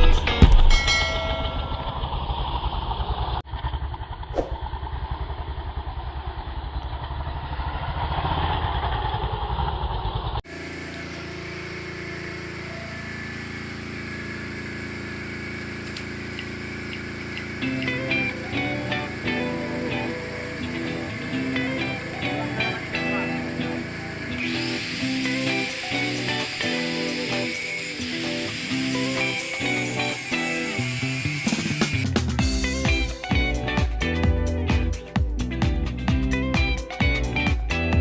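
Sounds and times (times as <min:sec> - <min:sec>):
motorcycle engine idling: 0:08.9 - 0:30.4.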